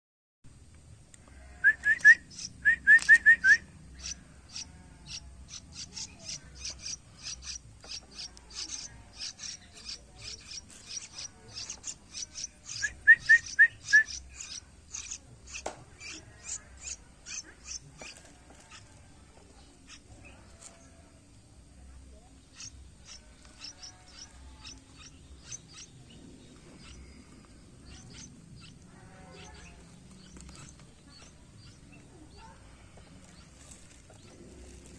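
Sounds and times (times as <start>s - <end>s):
bird chick high chirps: 1.6s - 19.0s, 22.4s - 32.6s.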